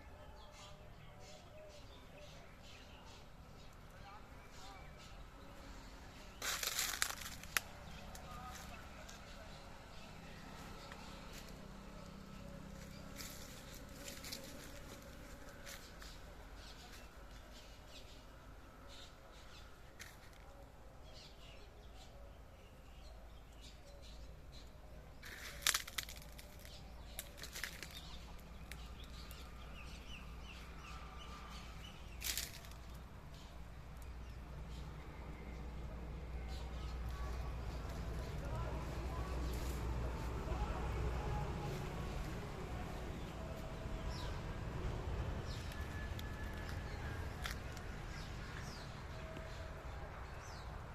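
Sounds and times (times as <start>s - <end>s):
birds chirping: 0.0s - 50.9s
rustling: 6.4s - 9.2s, 12.8s - 16.3s, 25.2s - 29.4s, 32.2s - 33.0s
steady low rumble: 35.8s - 50.9s.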